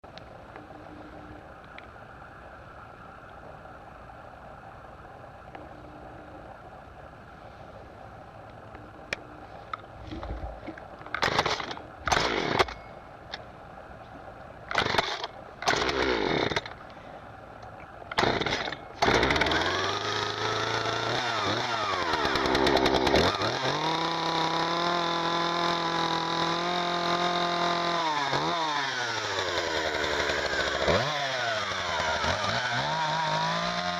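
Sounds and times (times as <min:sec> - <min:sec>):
chainsaw starting and revving: 0:11.2 - 0:12.8, 0:14.7 - 0:16.7, 0:18.1 - 0:33.9.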